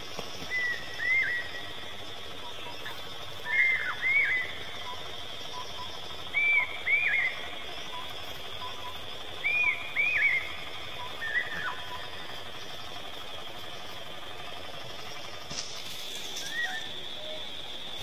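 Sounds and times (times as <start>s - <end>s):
high-pitched background drone: 0.0s - 18.0s
bird whistled notes: 0.5s - 1.7s, 3.4s - 12.2s, 16.2s - 17.4s.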